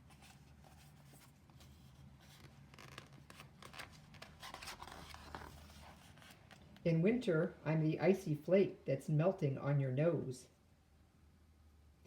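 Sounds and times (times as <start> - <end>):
paper rustling of pages turned: 0.0 - 6.9
low steady hum: 0.0 - 12.0.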